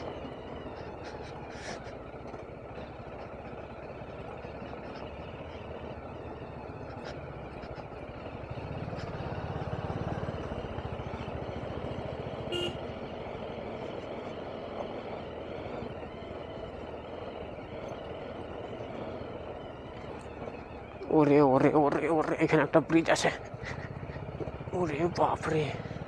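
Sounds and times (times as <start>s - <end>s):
motorcycle engine running: 0.0s - 26.0s
horn toot: 12.5s - 12.8s.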